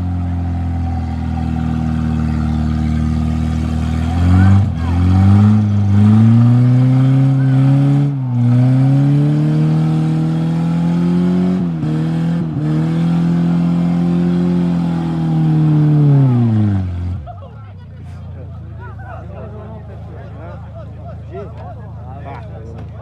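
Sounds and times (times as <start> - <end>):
engine revving hard: 1.2 - 17.2.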